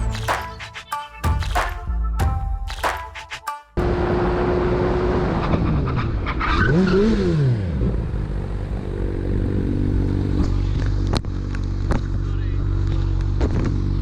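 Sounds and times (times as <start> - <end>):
motorcycle engine at high speed: 3.8 - 14.0
road and wind noise: 3.9 - 14.0.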